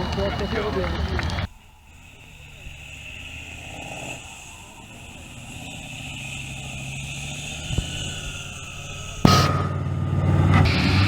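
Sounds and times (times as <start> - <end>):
truck engine running: 0.0 - 11.0
sharp knock: 9.1 - 11.0.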